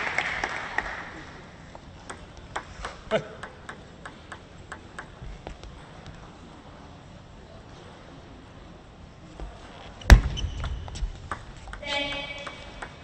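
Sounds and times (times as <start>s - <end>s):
crowd applause: 0.0s - 1.3s
table tennis ball clicks: 2.0s - 5.6s, 10.6s - 13.0s.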